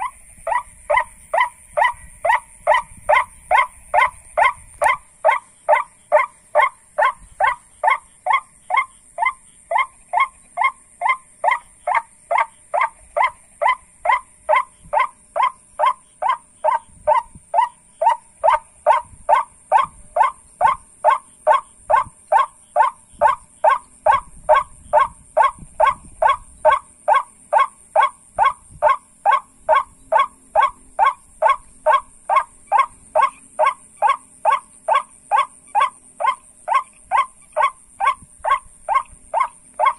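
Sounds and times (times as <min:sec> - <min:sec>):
waterhen lure call: 0:00.0 - 0:39.9.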